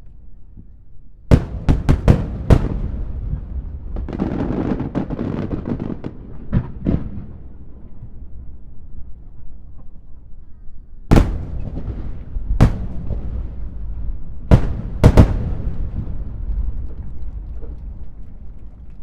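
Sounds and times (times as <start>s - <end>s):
firework shells bursting: 1.3s - 6.0s, 11.1s - 19.0s
low rumble: 11.1s - 19.0s.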